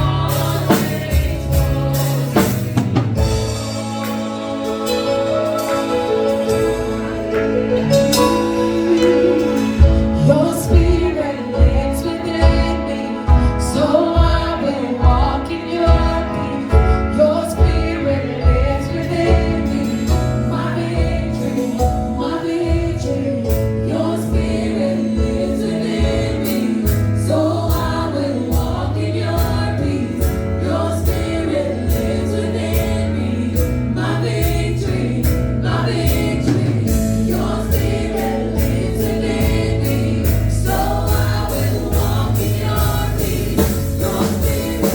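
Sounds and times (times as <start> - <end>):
drums beating: 0.0 - 5.8, 7.9 - 44.9
church choir singing gospel: 0.0 - 44.9
bass line: 6.4 - 44.9.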